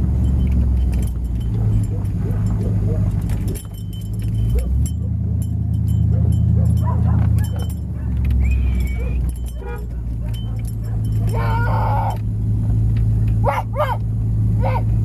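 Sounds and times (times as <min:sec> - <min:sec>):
truck engine droning: 0:00.0 - 0:15.0
dog whining: 0:06.1 - 0:12.2.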